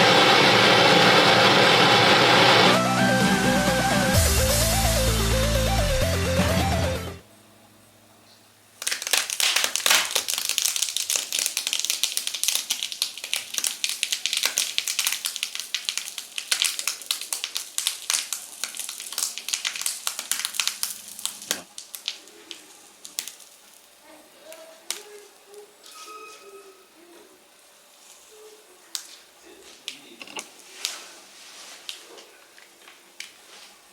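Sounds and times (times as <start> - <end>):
bubble wrap crackling and popping: 8.8 - 25.7.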